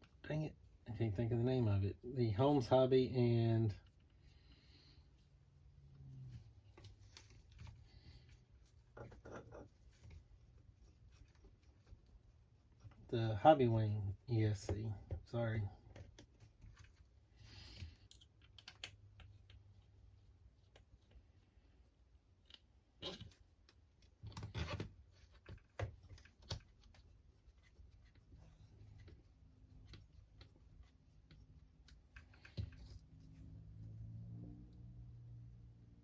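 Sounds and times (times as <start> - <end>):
light clicks and taps: 17.8 - 19.7.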